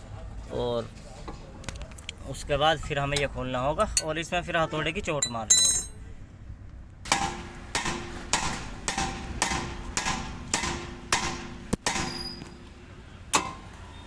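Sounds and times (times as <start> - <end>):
hammer striking steel: 5.5 - 6.0, 7.1 - 12.6, 13.3 - 13.7.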